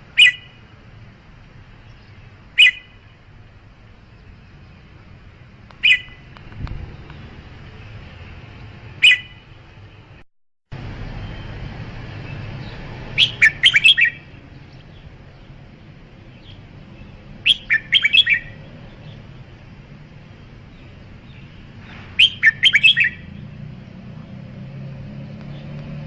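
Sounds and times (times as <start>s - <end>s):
bulbul singing: 0.0s - 0.8s, 1.8s - 10.2s, 11.0s - 24.6s.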